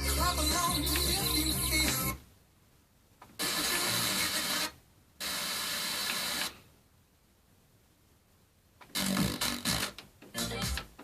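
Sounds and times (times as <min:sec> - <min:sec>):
radio tuner static hiss: 0:03.2 - 0:06.7, 0:08.8 - 0:11.0.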